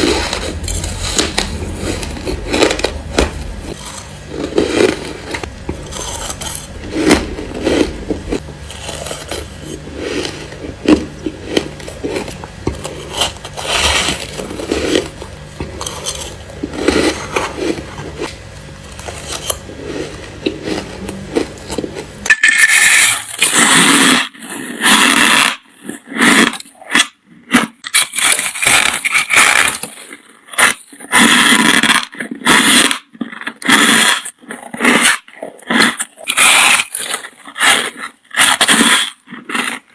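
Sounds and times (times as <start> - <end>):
low steady hum: 0.0 - 22.6
ice crunching while chewed: 0.0 - 39.9.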